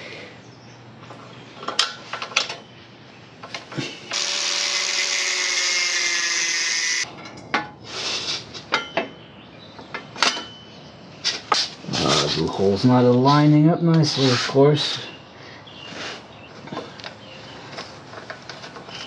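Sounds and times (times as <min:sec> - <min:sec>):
small power tool running: 0:04.1 - 0:07.1.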